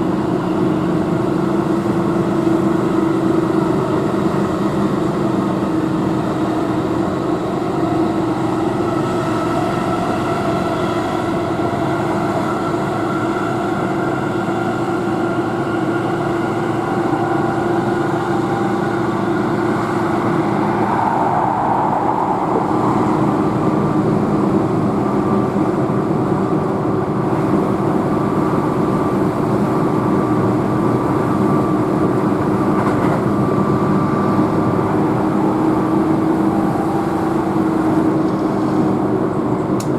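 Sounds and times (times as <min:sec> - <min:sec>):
train rolling on rails: 0:00.0 - 0:39.9.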